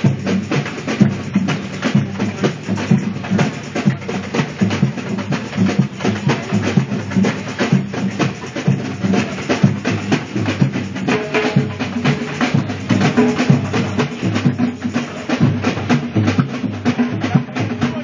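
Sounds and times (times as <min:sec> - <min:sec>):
drummers playing fast rhythm: 0:00.0 - 0:18.0.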